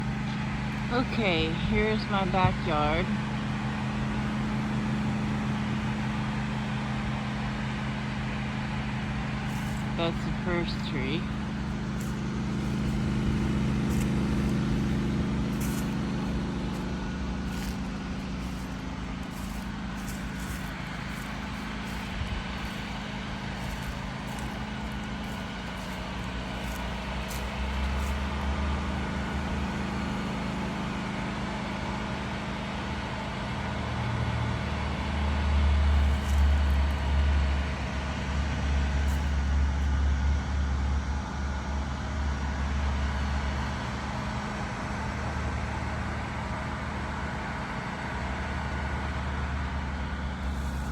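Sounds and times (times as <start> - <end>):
low engine hum: 0.0 - 50.9
deep rumble: 9.4 - 30.3.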